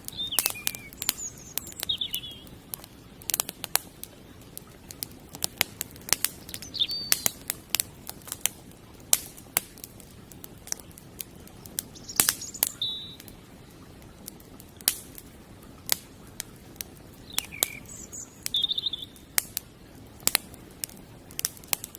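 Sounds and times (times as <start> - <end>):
bird chirps: 0.0 - 2.5, 6.4 - 7.4, 11.9 - 13.3, 17.2 - 19.3
campfire crackling and popping: 0.0 - 21.9.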